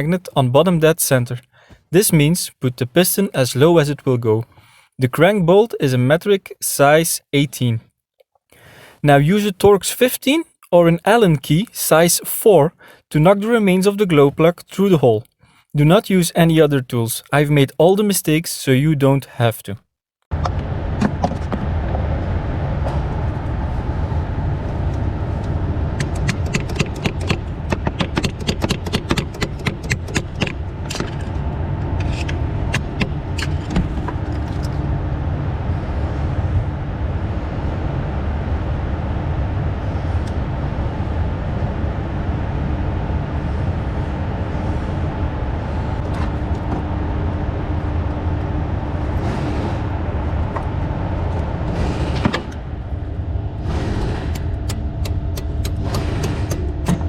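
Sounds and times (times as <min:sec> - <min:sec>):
steady low rumble: 0:20.3 - 0:57.0.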